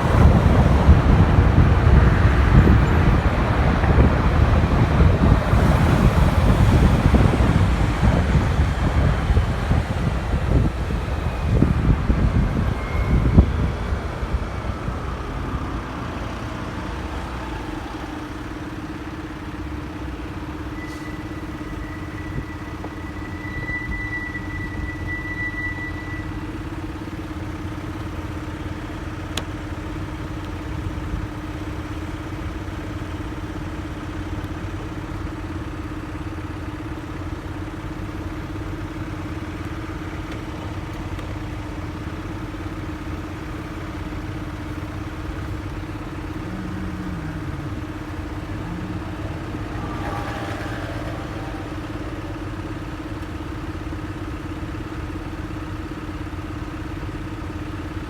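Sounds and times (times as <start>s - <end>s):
vehicle passing: 0.0s - 18.6s, 44.4s - 54.8s
road and traffic rumble: 0.0s - 58.0s
motorcycle engine running: 40.7s - 50.3s.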